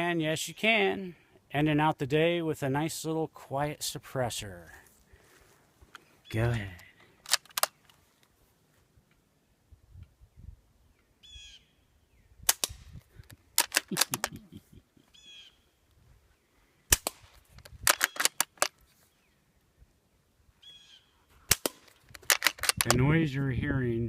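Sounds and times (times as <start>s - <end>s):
suppressed gunshots: 16.9s - 18.4s, 21.5s - 22.9s.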